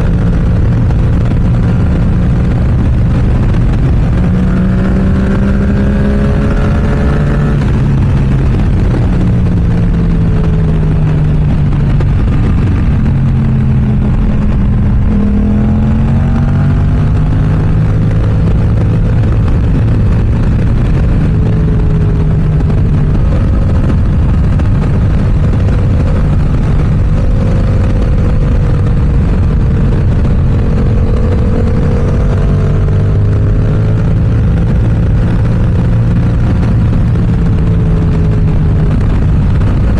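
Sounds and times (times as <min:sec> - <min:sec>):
motorcycle engine revving: 0:00.0 - 0:39.9
wind rush on microphone: 0:00.0 - 0:39.9.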